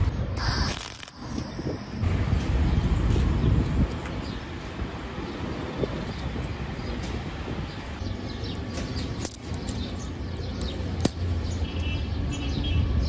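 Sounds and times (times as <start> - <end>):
sharp clicks: 0.4 - 2.0
birds chirping: 5.2 - 13.0.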